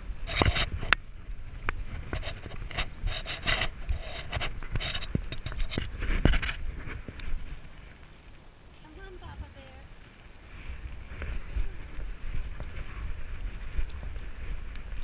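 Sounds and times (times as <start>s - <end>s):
scraping against a camera: 0.2s - 1.0s, 1.9s - 7.4s.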